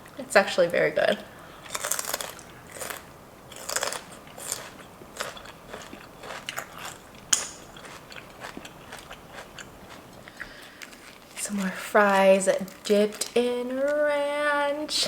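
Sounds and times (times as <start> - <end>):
chewing crunchy celery: 1.6 - 13.4.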